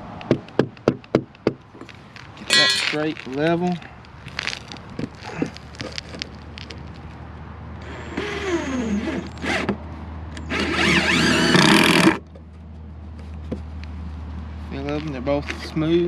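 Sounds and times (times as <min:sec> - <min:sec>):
power drill driving screws: 0:07.8 - 0:09.7, 0:10.4 - 0:12.2.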